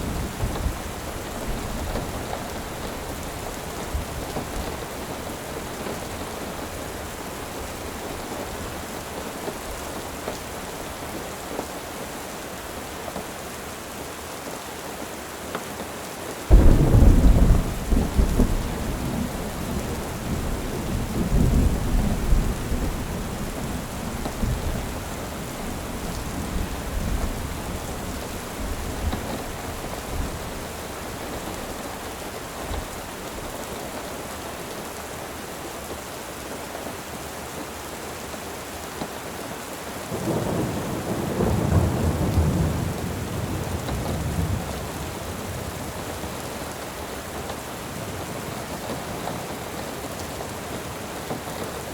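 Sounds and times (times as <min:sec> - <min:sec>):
steady rain falling: 0:00.0 - 0:51.9
thunder clap rumbling: 0:16.5 - 0:31.7, 0:40.2 - 0:45.8.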